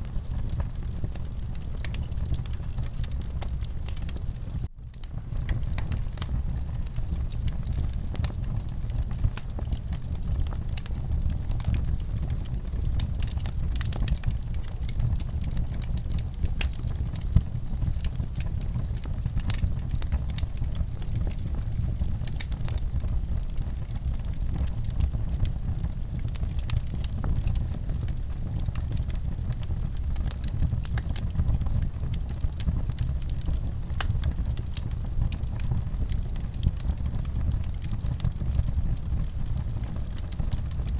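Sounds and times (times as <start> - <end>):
fire crackling and popping: 0.0 - 40.9
low fire rumble: 0.0 - 40.9.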